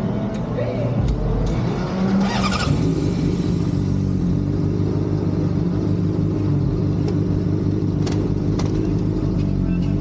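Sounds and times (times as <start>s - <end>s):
vehicle engine idling: 2.2s - 10.0s.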